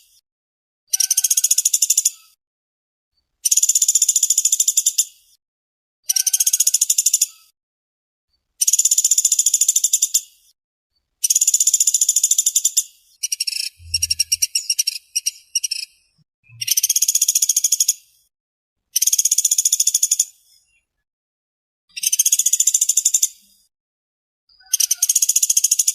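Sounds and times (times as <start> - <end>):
woodpecker high trills: 13.5 - 15.8, 24.6 - 25.6.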